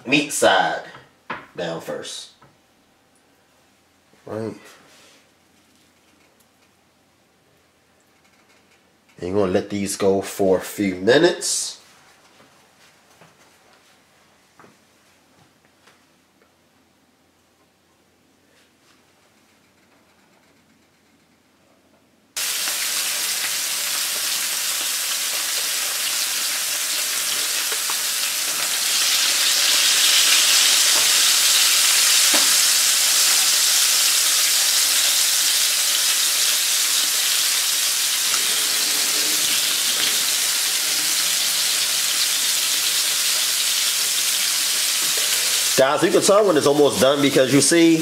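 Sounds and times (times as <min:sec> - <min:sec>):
fish sizzling in a frying pan: 0:22.4 - 0:46.5.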